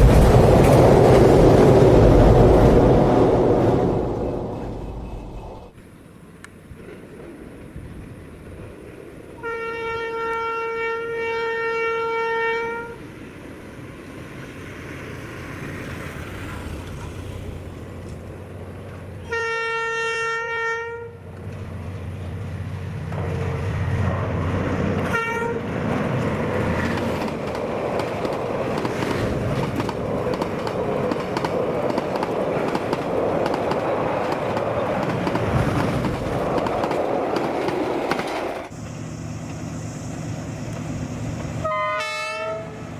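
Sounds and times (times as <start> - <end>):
train rumble: 0.0 - 42.9
train horn blast: 9.4 - 13.0, 19.2 - 21.2, 25.1 - 25.6, 41.6 - 42.9
wheels clattering over rails: 25.7 - 38.8.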